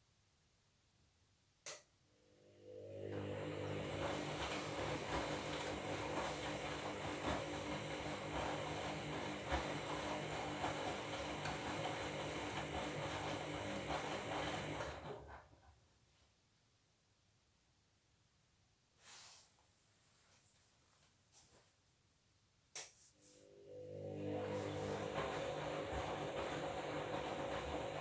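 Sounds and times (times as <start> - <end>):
washing machine running: 2.4 - 15.6, 23.4 - 28.0.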